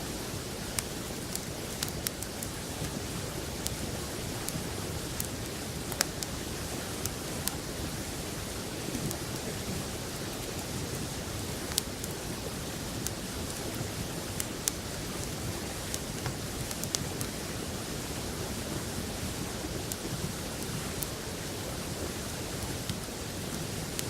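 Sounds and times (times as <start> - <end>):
wood fire crackling and popping: 0.5 - 7.7, 8.9 - 17.5, 19.6 - 21.5.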